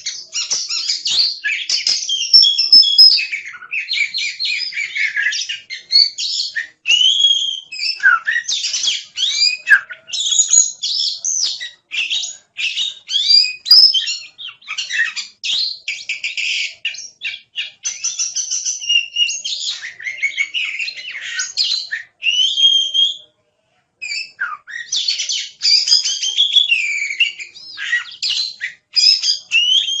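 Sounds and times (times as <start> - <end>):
songbird singing: 0.0 - 23.2.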